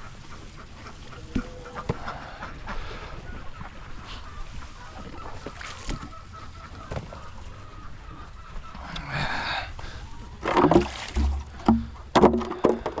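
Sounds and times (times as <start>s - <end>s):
ducks quacking: 0.0s - 12.9s
knocks and clatter: 10.4s - 13.0s.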